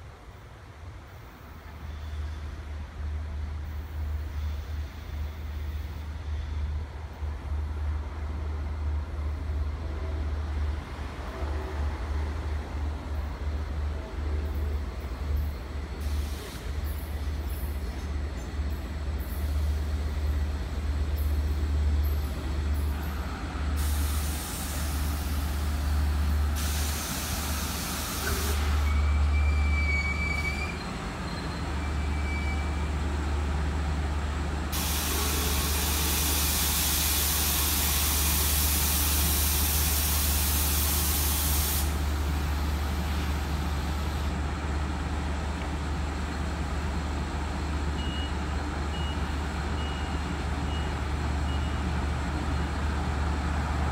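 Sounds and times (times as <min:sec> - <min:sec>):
train low rumble: 0:00.0 - 0:53.9
faint brake squeal: 0:01.6 - 0:02.5, 0:28.2 - 0:33.0, 0:48.0 - 0:51.9
brake air hissing: 0:23.8 - 0:25.9, 0:26.5 - 0:29.0, 0:34.7 - 0:44.3.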